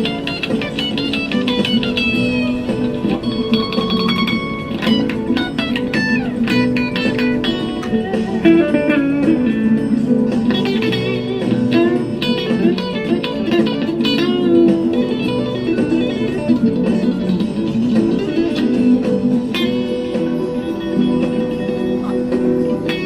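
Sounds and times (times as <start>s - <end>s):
electric guitar melody: 0.0s - 23.0s.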